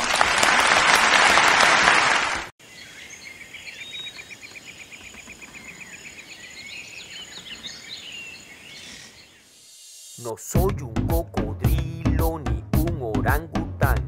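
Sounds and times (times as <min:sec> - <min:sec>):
applause: 0:00.0 - 0:02.5
high bird chirps: 0:02.6 - 0:10.3.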